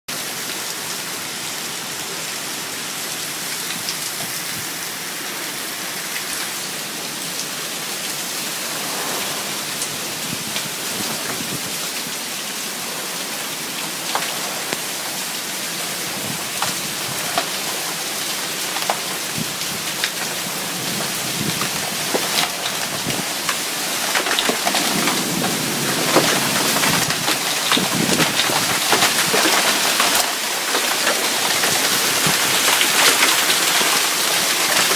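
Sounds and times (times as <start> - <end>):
heavy rain pouring: 0.1 - 34.9
raindrops tapping sharply: 18.7 - 34.9.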